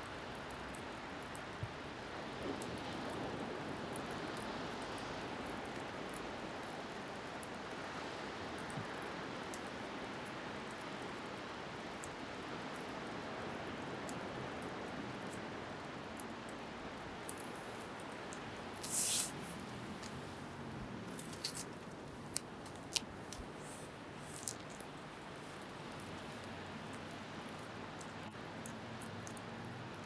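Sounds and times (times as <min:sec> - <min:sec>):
campfire crackling: 0:11.9 - 0:30.0.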